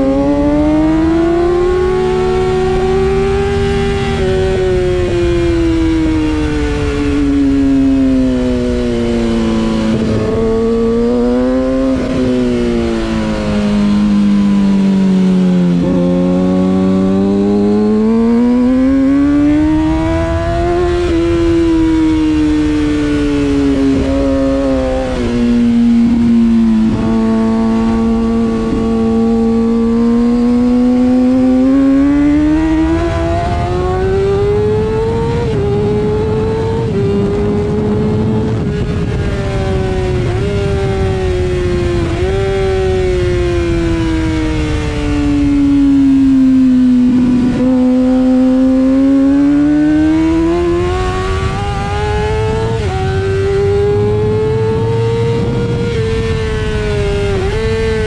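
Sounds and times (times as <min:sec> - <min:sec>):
motorcycle engine at high revs: 0:00.0 - 0:58.0.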